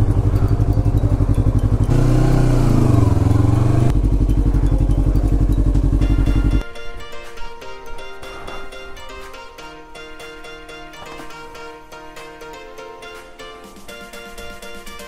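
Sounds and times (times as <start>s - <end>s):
motorcycle engine running: 0.0s - 6.6s.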